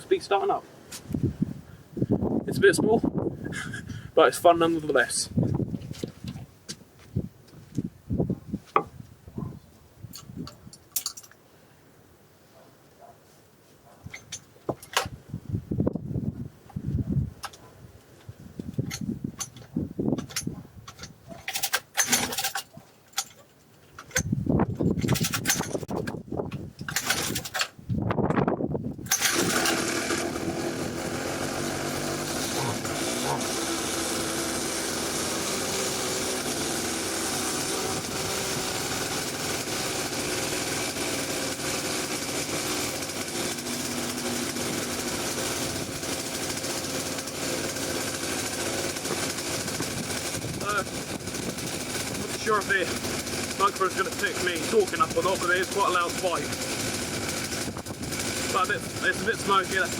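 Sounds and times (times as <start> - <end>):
engine being pull-started: 18.8 - 26.2, 26.8 - 27.8, 29.0 - 59.9
small engine running steadily: 25.0 - 26.2, 29.0 - 59.9.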